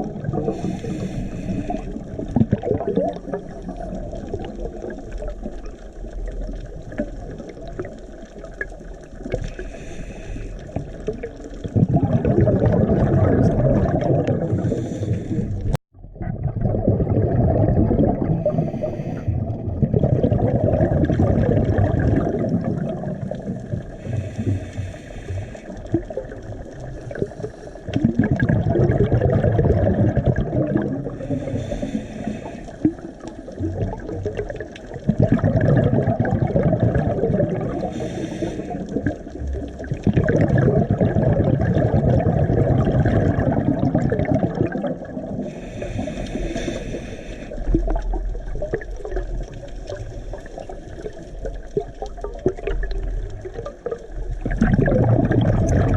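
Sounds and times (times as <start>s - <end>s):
exhaled bubbles underwater: 0.0s - 55.9s
regulator inhale hiss: 0.5s - 2.0s, 9.5s - 10.8s, 14.6s - 15.7s, 18.4s - 19.4s, 24.0s - 25.8s, 27.2s - 27.9s, 31.2s - 33.0s, 37.8s - 39.0s, 45.4s - 47.8s.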